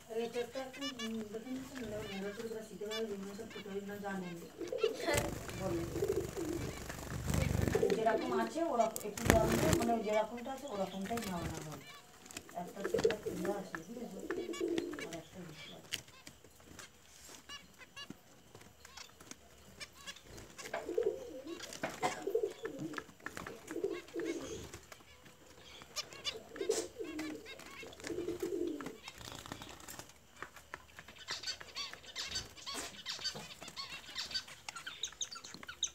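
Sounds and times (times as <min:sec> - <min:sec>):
low cooing calls: 0:00.0 - 0:12.1, 0:12.8 - 0:15.4, 0:20.3 - 0:24.8, 0:25.8 - 0:29.0
nestlings chirping: 0:00.0 - 0:35.9.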